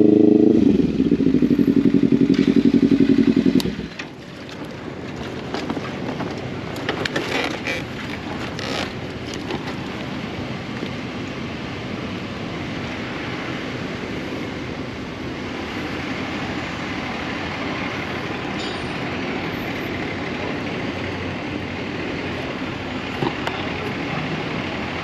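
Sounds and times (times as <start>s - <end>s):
motorcycle engine running: 0.0s - 6.7s
road noise: 0.0s - 25.0s.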